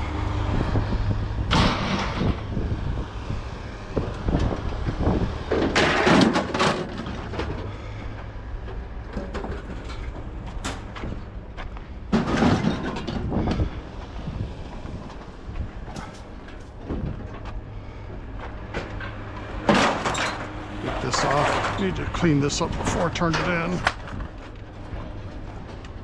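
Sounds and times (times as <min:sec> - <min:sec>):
low engine rumble: 0:00.0 - 0:26.0
scrap metal clattering: 0:05.5 - 0:11.4, 0:12.1 - 0:13.6, 0:14.9 - 0:26.0.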